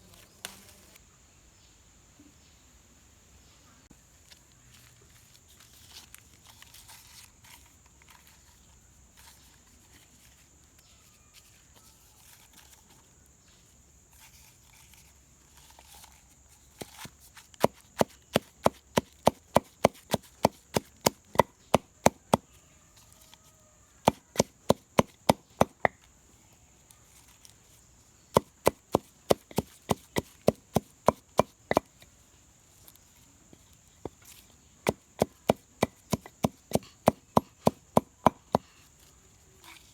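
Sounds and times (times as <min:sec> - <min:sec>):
chopping on a wooden surface: 0:16.8 - 0:22.5, 0:24.0 - 0:26.0, 0:28.3 - 0:32.0, 0:34.0 - 0:38.7.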